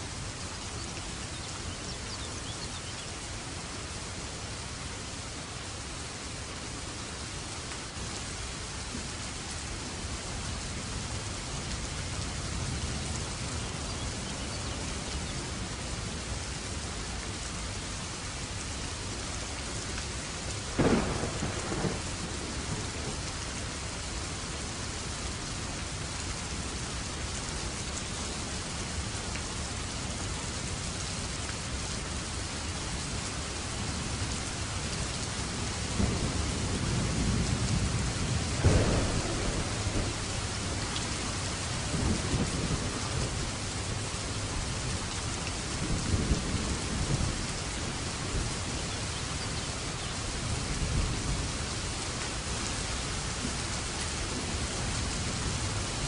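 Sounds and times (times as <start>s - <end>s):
rain falling: 0.0s - 56.0s
low thunder rumble: 20.7s - 23.4s, 35.9s - 48.8s
sharp thunderclap: 20.8s - 22.1s, 38.6s - 40.8s.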